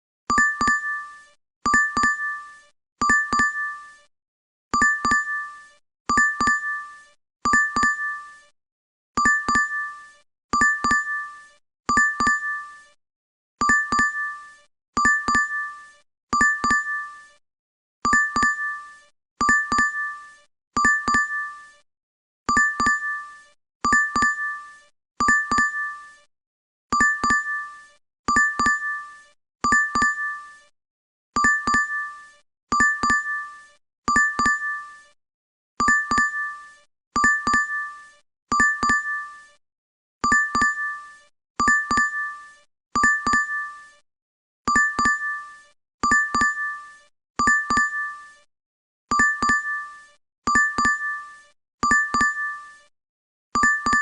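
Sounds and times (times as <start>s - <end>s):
app notification double ding: 53.6s - 54.0s.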